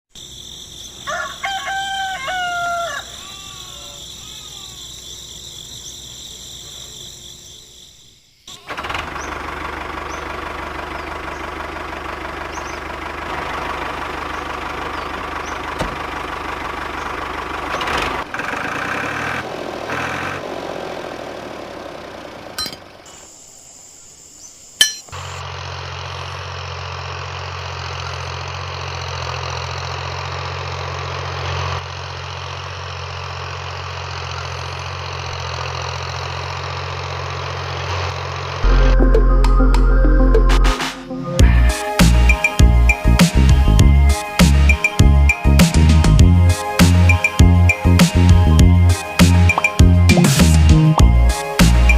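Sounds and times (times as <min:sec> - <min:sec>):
rooster crowing: 0:01.0 - 0:05.4.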